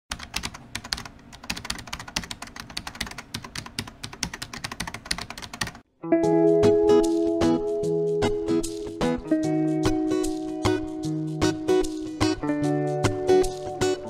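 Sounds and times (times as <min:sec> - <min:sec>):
plucked-string music: 0:06.0 - 0:14.0.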